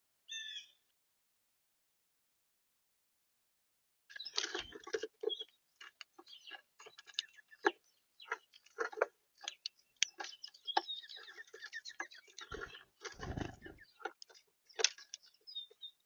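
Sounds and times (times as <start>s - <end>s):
animals tapping at bird feeder: 4.1s - 16.0s.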